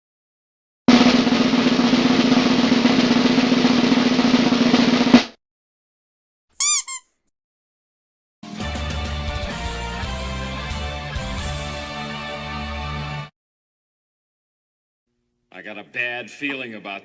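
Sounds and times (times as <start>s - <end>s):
snare drum roll: 0.9s - 5.4s
high squeaky chirps: 6.6s - 7.1s.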